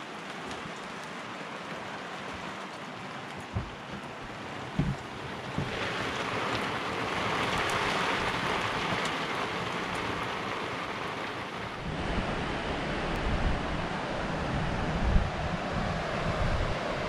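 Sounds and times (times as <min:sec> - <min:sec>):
rain falling on boat deck: 0:00.0 - 0:17.0
surf on a beach: 0:00.0 - 0:17.0
wind buffeting microphone: 0:03.4 - 0:10.0, 0:11.5 - 0:17.0.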